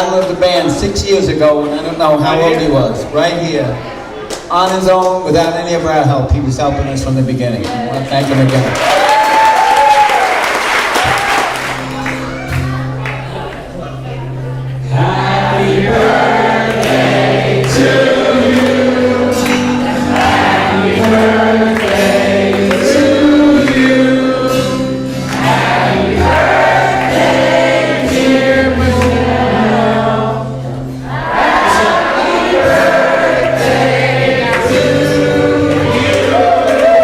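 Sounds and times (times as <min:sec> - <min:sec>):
low accompaniment: 0:11.9 - 0:37.0
choir singing: 0:14.8 - 0:37.0.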